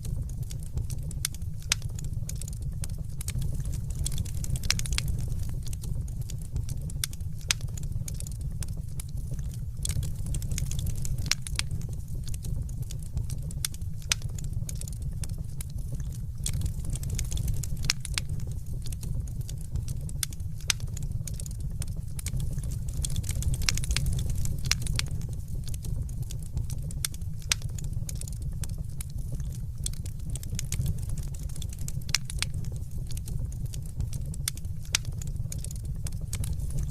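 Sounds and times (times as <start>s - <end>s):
low rumble: 0.0s - 27.1s
wood fire crackling: 0.0s - 36.9s.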